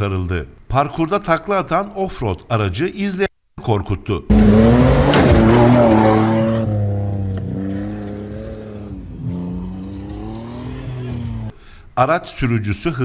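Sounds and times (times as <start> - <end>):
vehicle engine running hard: 4.3 - 11.5.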